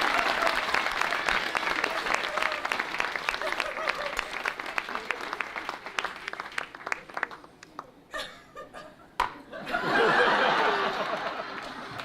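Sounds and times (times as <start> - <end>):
audience applause: 0.0 - 7.9, 10.2 - 12.0
audience laughter and voices: 1.7 - 5.9, 7.8 - 12.0.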